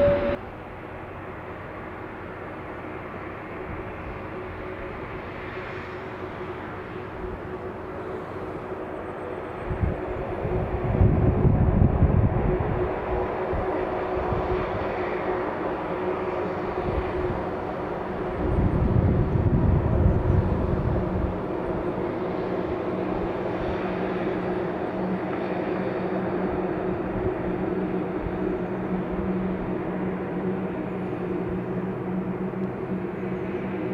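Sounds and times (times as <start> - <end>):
deep rumble: 0.0 - 0.4
jet engines droning: 0.0 - 33.9.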